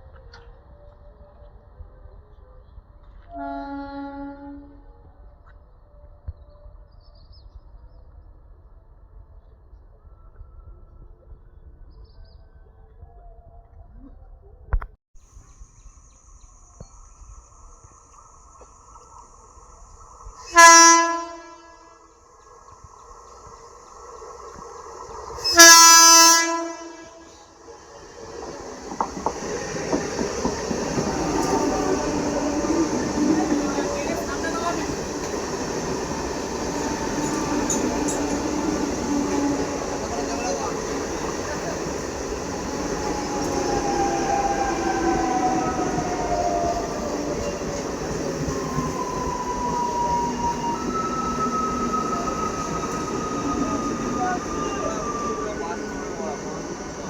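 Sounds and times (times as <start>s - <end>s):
train horn blast: 3.3s - 5.0s, 20.5s - 22.1s, 25.4s - 27.5s
thin whining tones: 27.1s - 57.0s
train wheels clattering over rail joints: 28.4s - 54.5s.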